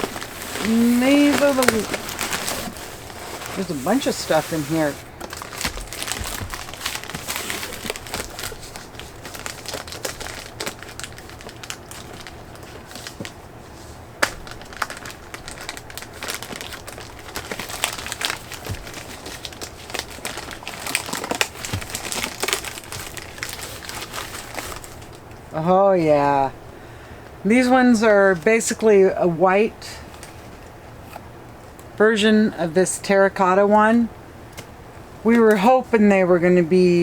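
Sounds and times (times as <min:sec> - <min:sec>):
packing material crinkling: 0:00.0 - 0:13.6, 0:14.2 - 0:25.4.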